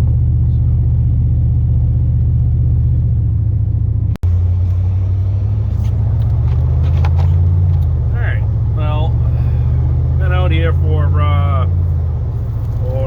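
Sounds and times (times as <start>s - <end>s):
truck engine droning inside cab: 0.0s - 13.0s.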